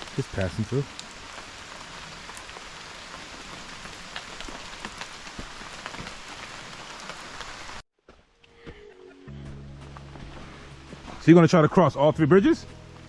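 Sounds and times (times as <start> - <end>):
steady rain with drop hits: 0.0 - 7.8.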